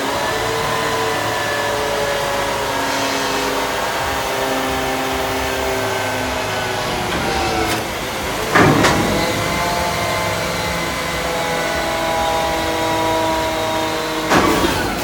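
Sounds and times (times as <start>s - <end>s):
truck engine running: 0.0s - 15.0s
loud burst of noise: 2.3s - 15.0s.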